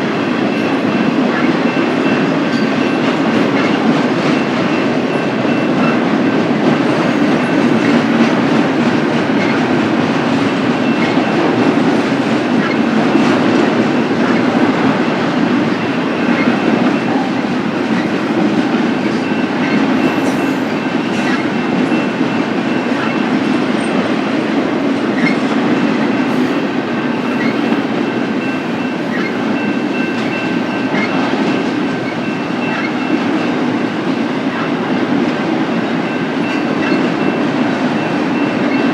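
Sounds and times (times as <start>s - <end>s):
freight train rumble: 0.0s - 38.9s
train wheels clacking over rail: 0.0s - 38.9s.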